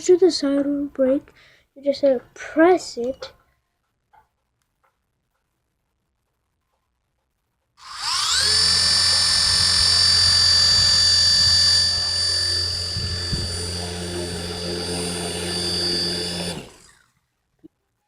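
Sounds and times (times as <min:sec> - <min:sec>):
toy helicopter motor whine: 0:07.8 - 0:17.2.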